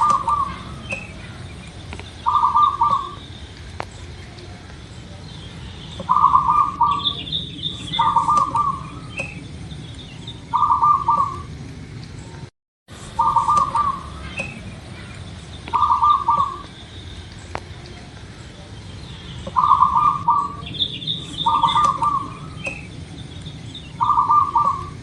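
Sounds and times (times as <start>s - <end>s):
dove cooing: 0.0s - 1.5s, 2.2s - 3.2s, 6.0s - 9.4s, 10.5s - 11.6s, 13.1s - 15.1s, 15.7s - 16.8s, 19.4s - 22.9s, 24.0s - 25.0s
small birds chirping: 0.0s - 25.0s.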